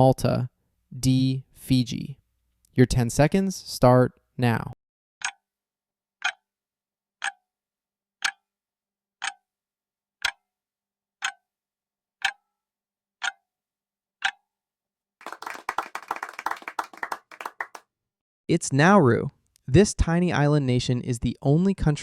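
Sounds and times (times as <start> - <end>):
clock ticking: 6.2 - 6.4, 7.2 - 7.4, 8.2 - 8.5, 9.2 - 9.4, 10.2 - 10.4, 11.2 - 11.4, 12.2 - 12.4, 13.2 - 13.4, 14.2 - 14.4
people clapping: 15.2 - 17.8.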